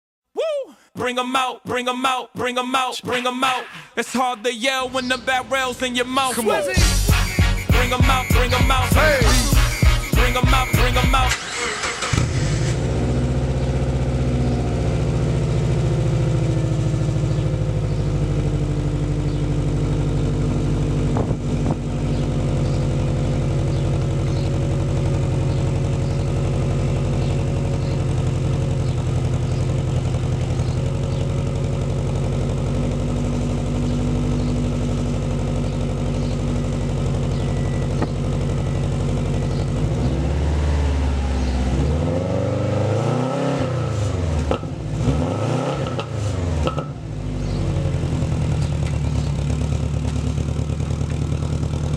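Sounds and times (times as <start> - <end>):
car engine idling: 4.8 - 42.0, 46.5 - 51.9
engine revving blip: 43.0 - 47.1.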